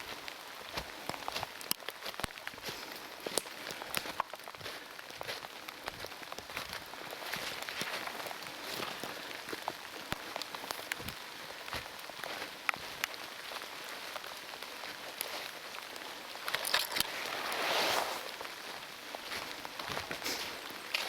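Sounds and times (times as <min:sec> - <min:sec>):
raindrop ticks: 0:00.7 - 0:08.4, 0:09.4 - 0:13.6.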